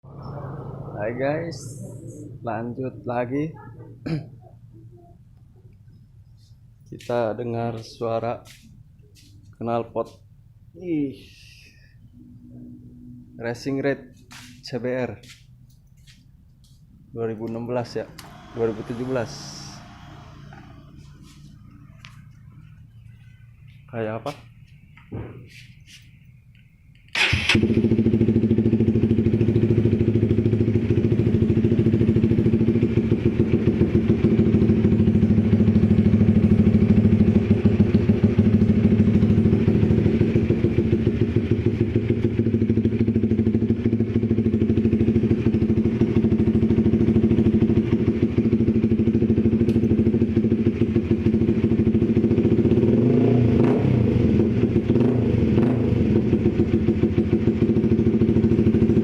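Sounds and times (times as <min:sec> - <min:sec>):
motorcycle idling: 0:12.6 - 0:53.2, 0:54.0 - 0:59.0.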